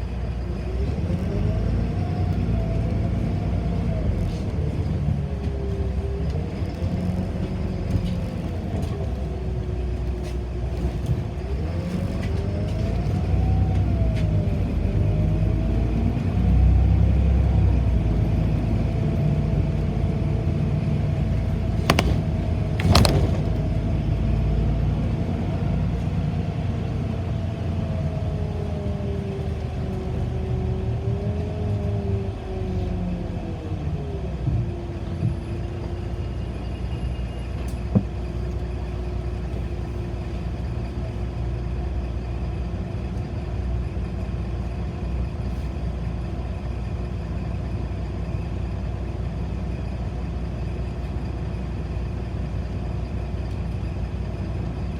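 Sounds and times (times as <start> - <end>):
bus drivetrain and road rumble: 0.0 - 54.9
bus whine: 0.0 - 54.9
sharp knocks: 21.8 - 23.6.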